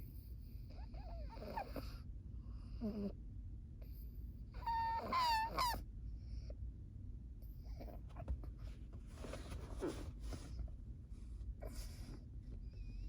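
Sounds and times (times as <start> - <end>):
dog snoring: 0.8 - 2.0
dog whining: 4.6 - 5.8.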